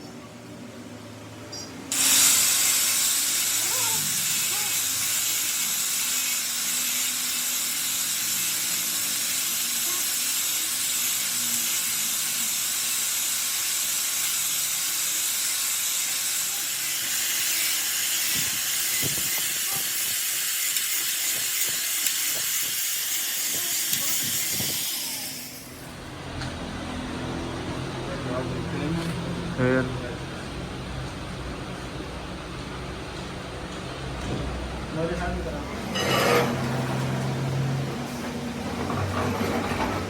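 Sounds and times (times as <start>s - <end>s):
high pressure hiss: 1.9s - 25.9s.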